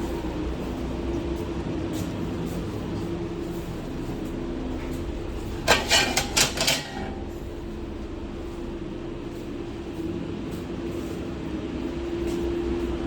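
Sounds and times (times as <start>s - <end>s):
kitchen equipment humming: 3.4s - 9.7s.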